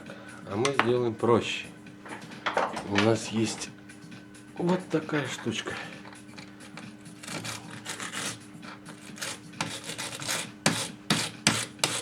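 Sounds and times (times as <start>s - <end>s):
file scraping metal teeth: 6.4s - 12.0s.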